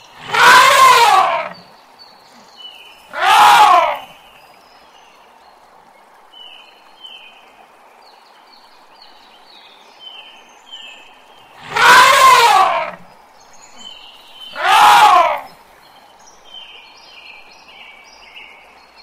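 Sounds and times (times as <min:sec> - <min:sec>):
elephant trumpeting: 0:00.2 - 0:01.6, 0:03.1 - 0:04.1, 0:11.6 - 0:13.0, 0:14.5 - 0:15.5.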